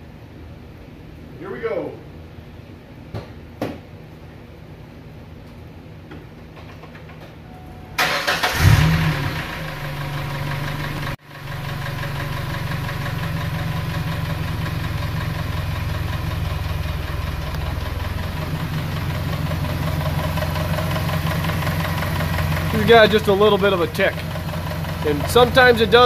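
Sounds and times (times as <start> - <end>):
car engine starting and idling: 6.7 - 26.0
engine lifter tick: 17.4 - 17.9, 24.1 - 25.7.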